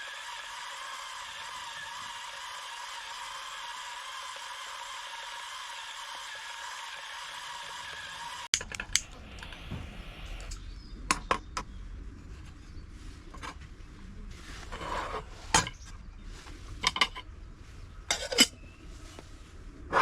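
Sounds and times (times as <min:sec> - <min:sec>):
cookware and utensils clinking: 0:18.1 - 0:18.6.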